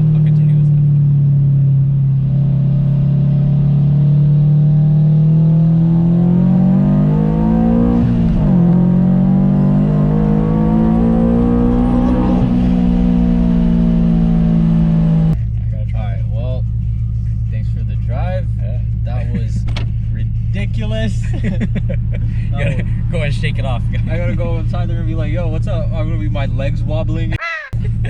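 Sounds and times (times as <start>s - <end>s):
car engine revving through gears: 0.0s - 15.4s.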